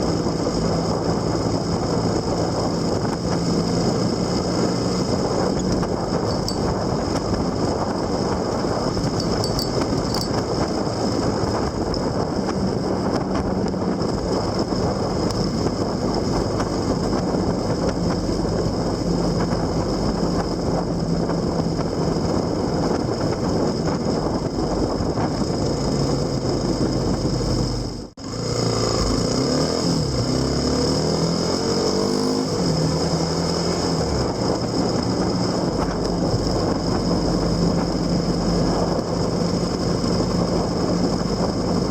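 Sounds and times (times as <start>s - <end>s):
motorcycle engine running: 0.0s - 29.2s
wind and road noise: 0.0s - 41.9s.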